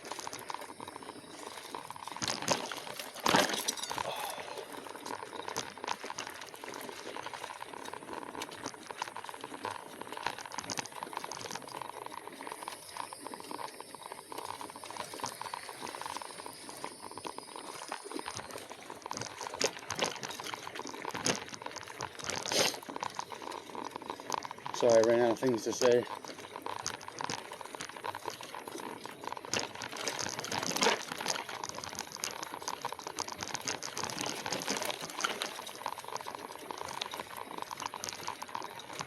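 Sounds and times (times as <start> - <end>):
bike tyres crackling over rough trail: 0.0 - 39.0
faint high steady tone: 12.3 - 19.0.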